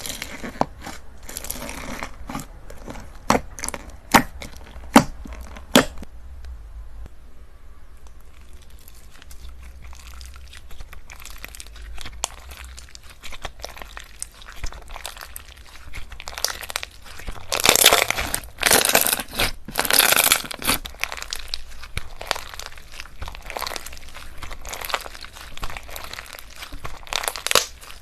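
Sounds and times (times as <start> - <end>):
slime crackling when squeezed: 8.1 - 28.0.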